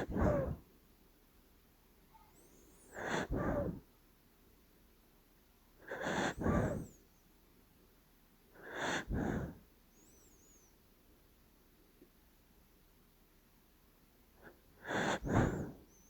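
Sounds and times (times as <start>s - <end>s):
puppy snoring: 0.0s - 0.6s, 2.8s - 3.8s, 5.8s - 7.0s, 8.6s - 9.6s, 14.8s - 15.9s.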